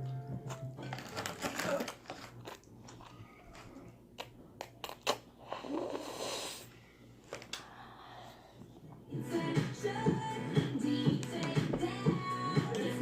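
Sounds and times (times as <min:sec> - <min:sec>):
mouth clicks and smacks: 0:04.2 - 0:05.3
breathy slurp: 0:05.4 - 0:06.7.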